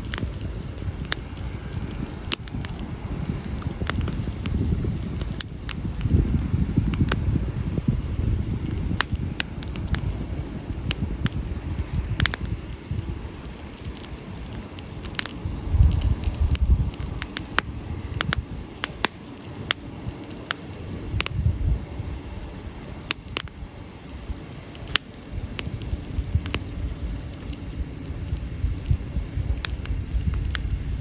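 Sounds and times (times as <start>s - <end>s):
low rumble: 0.0s - 18.9s
campfire crackling: 0.0s - 31.0s
fire pops and snaps: 0.0s - 31.0s.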